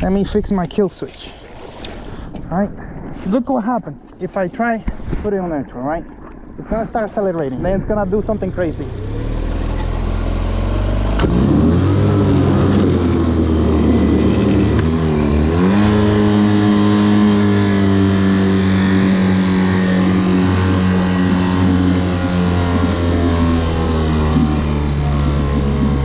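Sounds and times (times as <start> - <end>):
outboard motor revving: 7.6 - 26.0.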